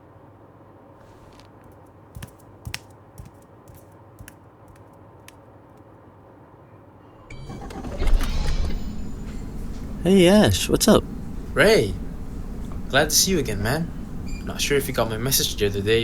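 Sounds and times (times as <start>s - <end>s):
keyboard clicks and taps: 1.6s - 5.9s
low steady hum: 7.2s - 16.0s.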